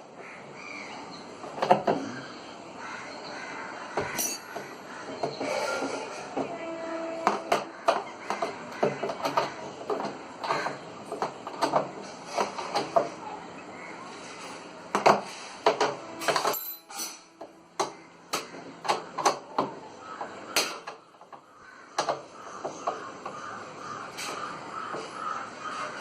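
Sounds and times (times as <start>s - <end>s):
metal tools clanking: 4.1s - 4.7s, 16.2s - 17.4s.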